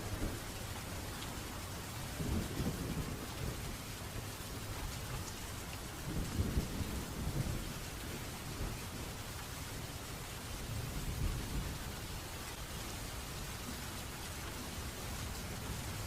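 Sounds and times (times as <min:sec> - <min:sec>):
steady rain falling: 0:00.0 - 0:16.0
thunder rumbling: 0:02.0 - 0:09.2.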